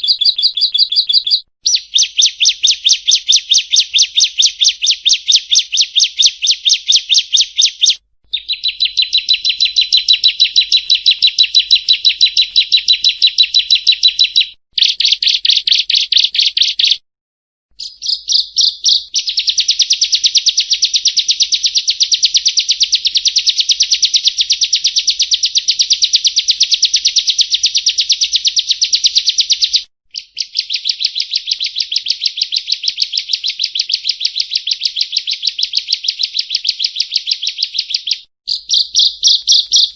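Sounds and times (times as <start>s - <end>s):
bird song rapid high trills: 0.0s - 17.0s, 17.8s - 22.5s, 38.5s - 39.9s.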